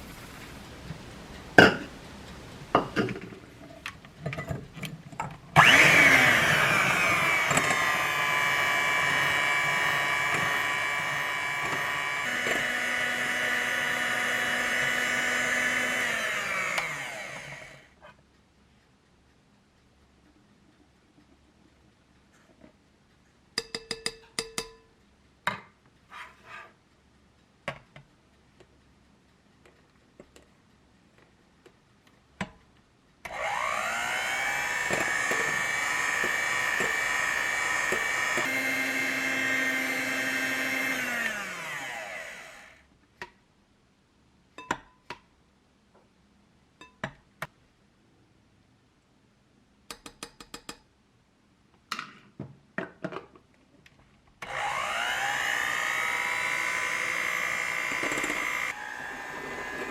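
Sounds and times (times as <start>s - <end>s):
electric mixer whipping: 5.6s - 17.9s, 33.3s - 42.8s, 54.4s - 59.9s.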